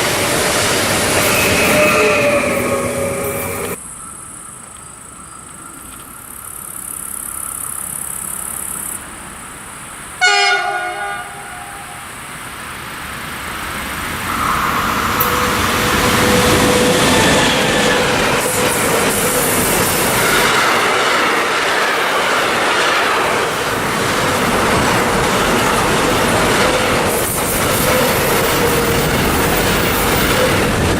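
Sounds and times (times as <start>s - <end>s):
train horn blast: 0.0s - 3.8s, 10.2s - 12.2s, 14.3s - 18.8s
train passing: 0.0s - 3.8s, 10.2s - 30.9s.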